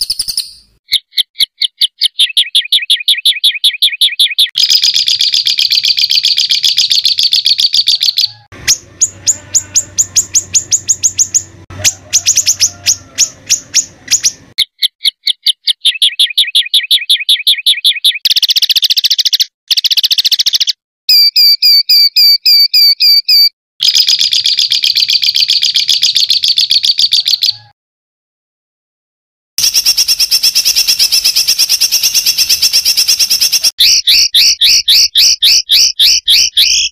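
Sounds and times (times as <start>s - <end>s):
songbird harsh rapid notes: 4.3s - 17.3s, 29.6s - 36.9s.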